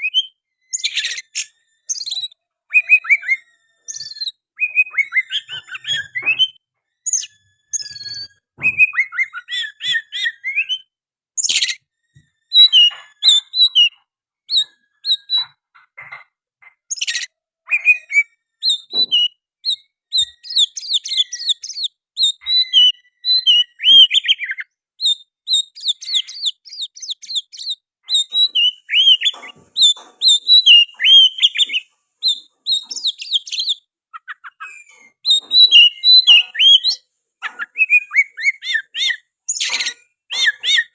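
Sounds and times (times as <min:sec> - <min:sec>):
bird singing whistles and chirps: 0:00.0 - 0:11.8, 0:12.5 - 0:15.6, 0:16.9 - 0:40.9
harsh rasping bird notes: 0:27.4 - 0:40.9.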